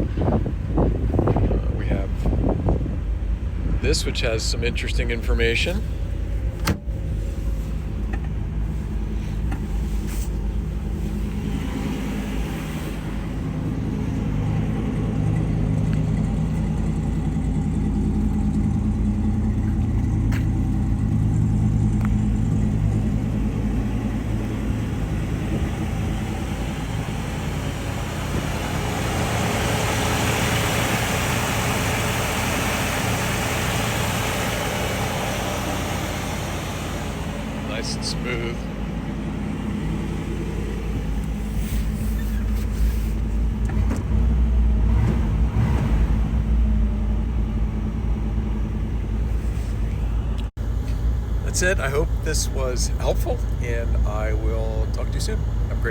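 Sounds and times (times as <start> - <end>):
car engine idling: 0.0 - 55.9.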